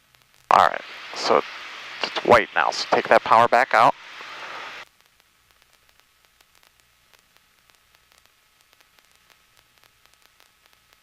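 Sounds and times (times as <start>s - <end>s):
faint static hiss: 0.0s - 11.0s
small scattered clicks: 5.0s - 11.0s.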